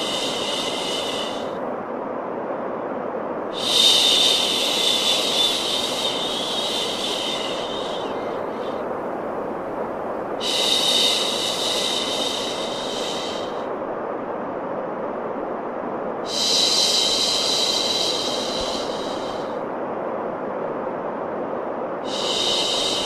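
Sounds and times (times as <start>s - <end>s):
steady white noise: 0.0s - 23.0s
soothing shushing: 3.6s - 8.8s.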